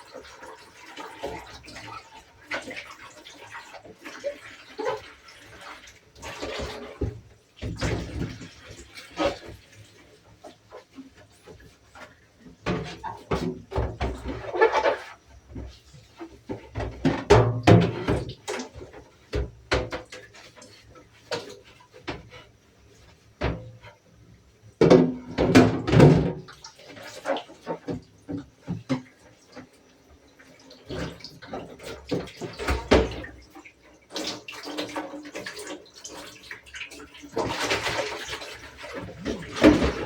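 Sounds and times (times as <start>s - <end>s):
running or splashing water: 0.0s - 40.0s
objects knocking and clattering: 16.5s - 18.7s, 24.8s - 26.5s.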